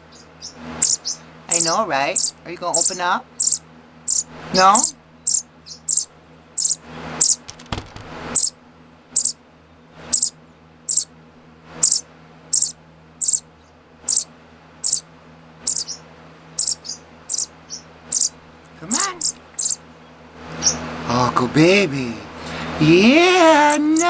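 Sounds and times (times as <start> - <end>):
baby sparrow chirping: 0.0 - 7.4, 8.3 - 9.4, 10.1 - 11.1, 11.8 - 16.0, 16.6 - 19.8, 20.6 - 20.8.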